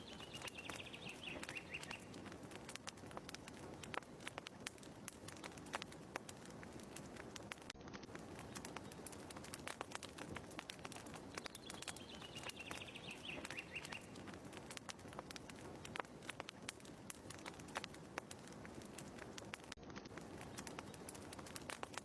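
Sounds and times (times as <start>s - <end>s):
bird trill: 0.0s - 2.1s, 11.5s - 14.1s
wood fire crackling: 0.0s - 22.0s.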